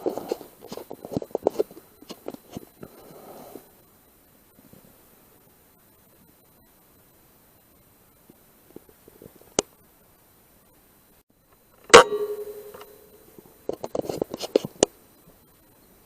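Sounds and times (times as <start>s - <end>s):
rifle shot with ringing tone: 11.9s - 13.3s.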